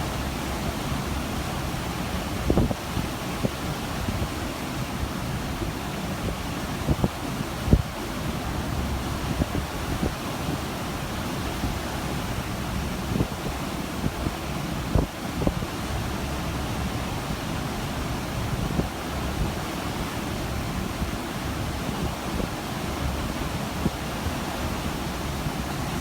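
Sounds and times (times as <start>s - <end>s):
ocean water rushing: 0.0s - 26.0s
wind buffeting microphone: 2.4s - 10.7s.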